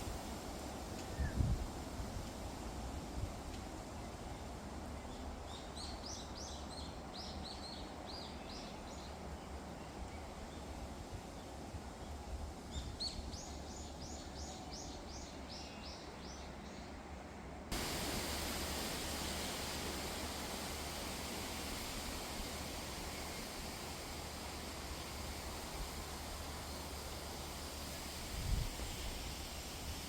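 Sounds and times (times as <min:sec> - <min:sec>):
loud even hiss: 0:00.0 - 0:30.0
wind blowing through trees: 0:00.0 - 0:30.0
small songbird singing: 0:12.7 - 0:16.9.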